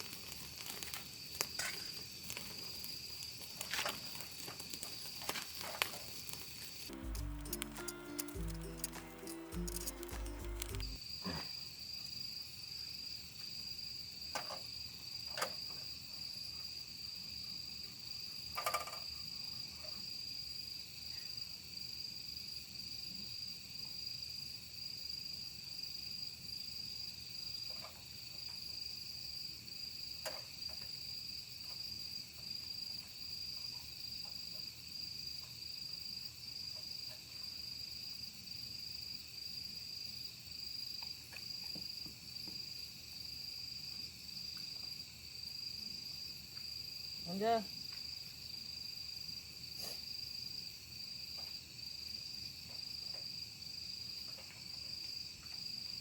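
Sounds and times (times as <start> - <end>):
wood fire crackles: 0.0 - 11.0, 51.2 - 56.0
night insects chirring: 0.0 - 56.0.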